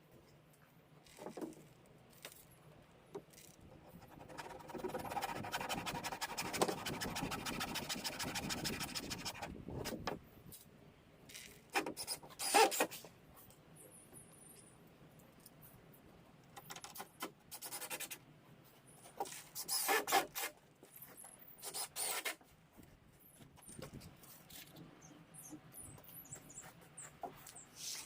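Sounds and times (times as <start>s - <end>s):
scraping and rubbing against wood: 3.7s - 10.2s.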